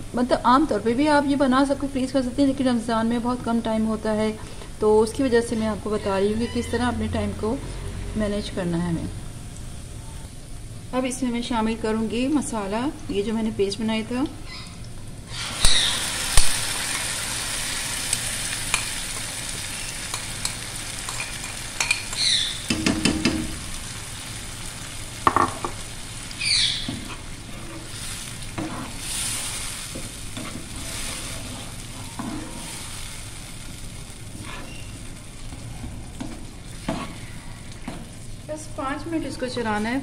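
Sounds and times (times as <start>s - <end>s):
onions sizzling in oil: 13.7s - 40.0s
spoon scraping a metal pot: 28.6s - 32.6s, 34.4s - 34.9s.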